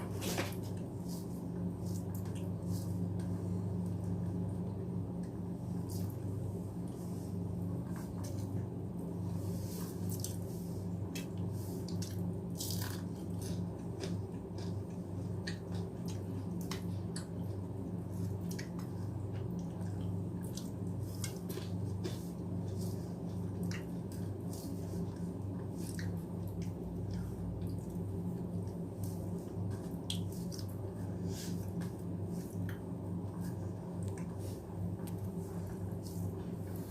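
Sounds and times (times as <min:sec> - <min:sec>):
steady low hum: 0:00.0 - 0:36.9
wet chewing sounds: 0:11.2 - 0:17.5, 0:18.3 - 0:28.0.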